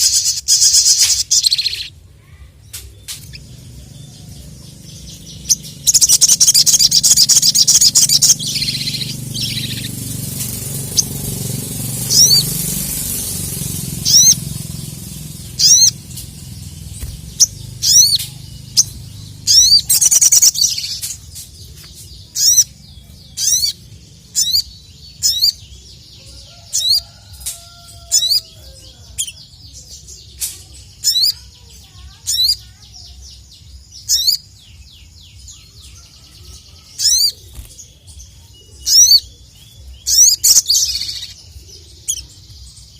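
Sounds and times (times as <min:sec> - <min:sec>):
low background rumble: 0:00.0 - 0:30.3
bird chirping: 0:00.0 - 0:42.9.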